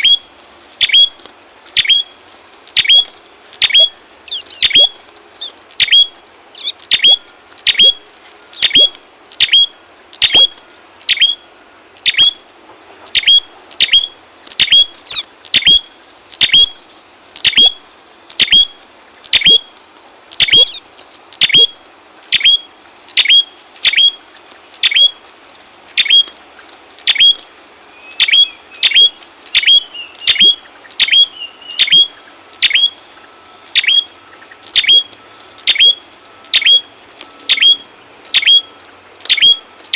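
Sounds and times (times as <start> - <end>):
bird chirping sharply: 0.8 - 1.2, 1.8 - 2.1, 2.8 - 8.0, 8.6 - 11.4, 13.1 - 19.7, 20.4 - 20.8, 21.4 - 24.2, 24.8 - 25.2, 27.0 - 33.0, 33.8 - 39.6.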